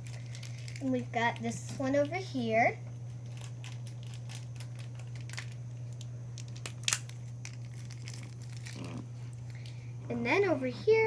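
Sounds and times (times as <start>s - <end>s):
plastic toys clicking and crinkling: 0.0s - 2.1s, 3.1s - 8.9s
steady low hum: 0.0s - 11.0s.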